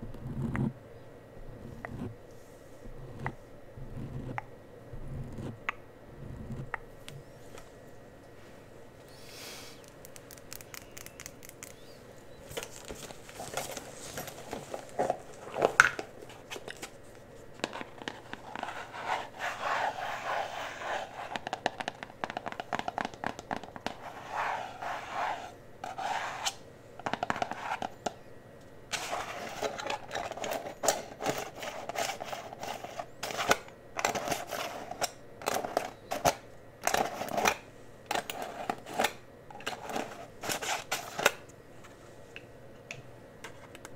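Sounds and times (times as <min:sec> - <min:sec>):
brushes scratching and rubbing: 0:18.0 - 0:21.6, 0:23.9 - 0:26.6
cosmetic products tapping and clicking: 0:21.3 - 0:24.0.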